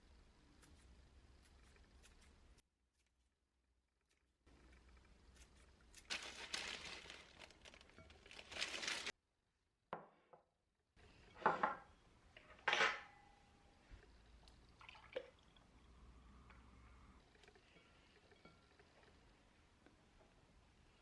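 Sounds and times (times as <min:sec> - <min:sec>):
kitchenware knocking and clinking: 0:11.4 - 0:13.2
liquid pouring: 0:14.5 - 0:15.8.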